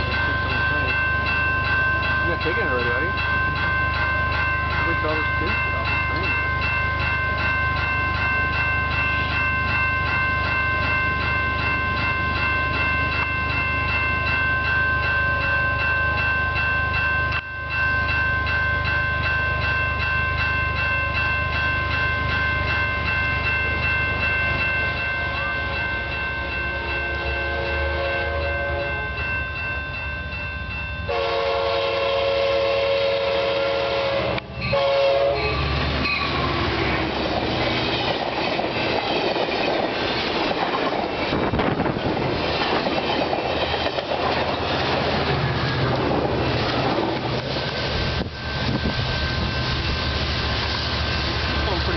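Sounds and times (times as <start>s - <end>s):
train rushing past: 21.2s - 51.9s
locomotive horn: 26.7s - 29.2s, 31.1s - 36.4s
wheels clattering over rail joints: 35.8s - 47.9s.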